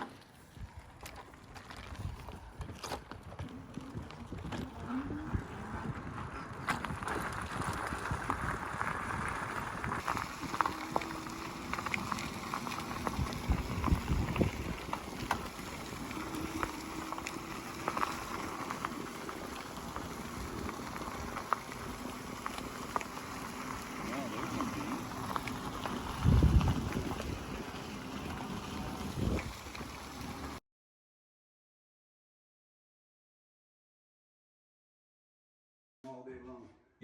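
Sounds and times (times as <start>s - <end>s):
small crackles and clicks: 6.2s - 30.6s
tyre hiss on wet road: 9.8s - 30.6s.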